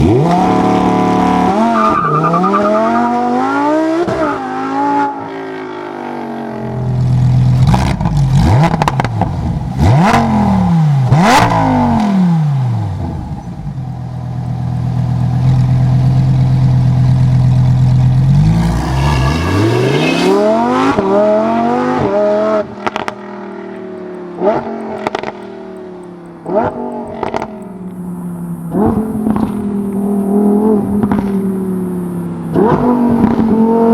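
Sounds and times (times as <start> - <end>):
sports car engine revving: 0.0 - 33.9
exhaust pops and crackles: 7.0 - 10.3, 22.8 - 23.3, 24.4 - 25.5, 26.4 - 27.9, 28.7 - 30.2, 30.9 - 31.5, 32.5 - 33.6.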